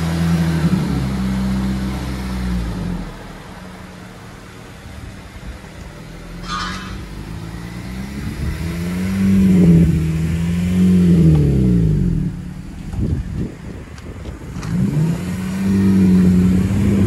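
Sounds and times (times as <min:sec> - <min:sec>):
car engine revving: 0:06.1 - 0:12.9, 0:14.5 - 0:17.0.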